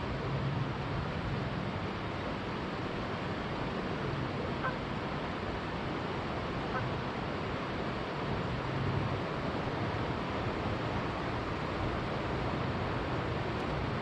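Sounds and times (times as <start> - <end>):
river flowing: 0.0 - 14.0
faint water bird calls: 4.4 - 5.0, 6.6 - 7.1.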